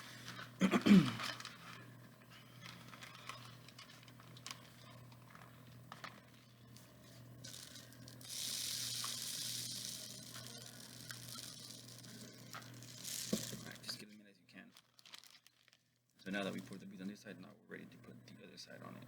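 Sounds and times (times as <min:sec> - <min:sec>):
beads rattling in rain stick: 0:07.4 - 0:14.0.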